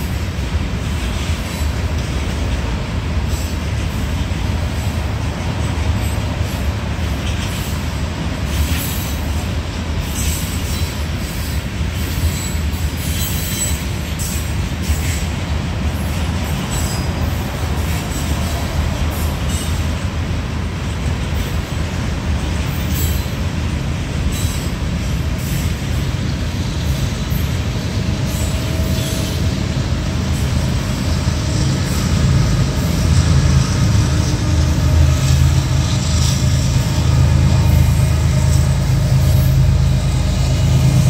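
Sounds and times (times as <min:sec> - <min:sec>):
freight cars rumbling past: 0:13.7 - 0:41.0.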